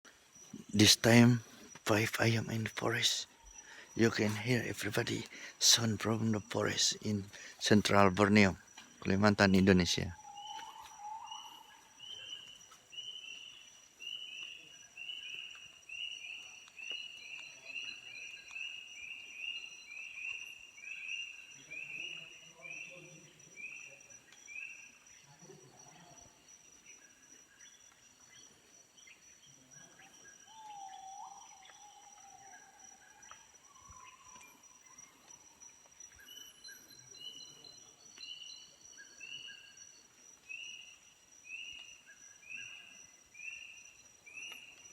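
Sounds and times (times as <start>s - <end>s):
high insect drone: 0.1s - 44.9s
lower bird call: 0.5s - 13.2s.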